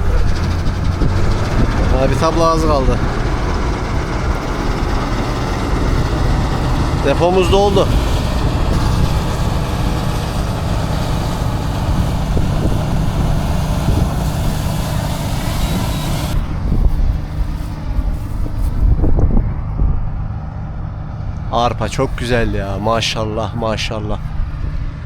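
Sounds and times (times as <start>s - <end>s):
machinery hiss: 0.0s - 18.4s
combine harvester engine rumble: 0.0s - 25.0s.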